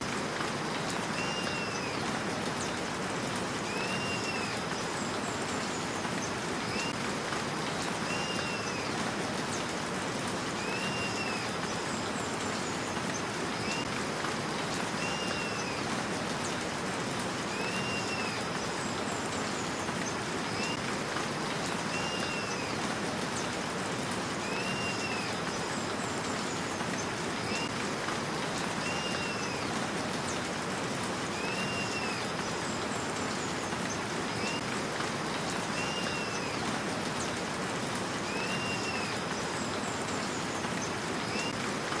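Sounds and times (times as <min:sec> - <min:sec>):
steady rain hiss: 0:00.0 - 0:42.0.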